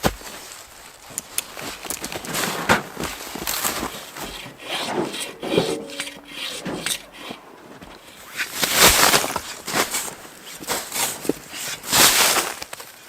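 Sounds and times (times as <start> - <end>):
hand saw cutting wood: 3.0 - 11.9.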